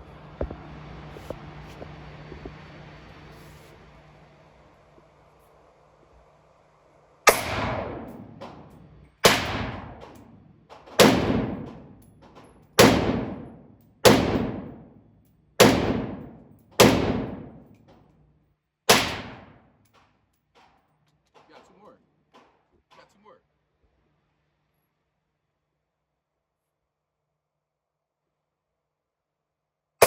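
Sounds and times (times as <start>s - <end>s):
gunshots with echoing decay: 7.3s - 12.0s, 12.8s - 15.0s, 15.6s - 17.7s, 18.9s - 19.6s.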